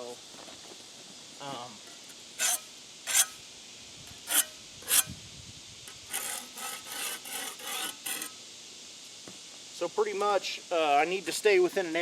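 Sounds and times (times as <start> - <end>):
hand tool scraping wet concrete: 2.4 - 3.4, 4.2 - 5.1, 5.9 - 8.4.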